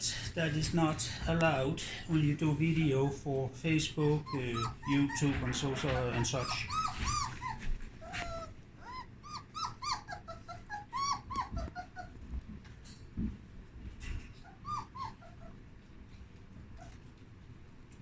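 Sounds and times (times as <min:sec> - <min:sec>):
puppies whimpering: 0:00.0 - 0:12.4, 0:14.2 - 0:15.6.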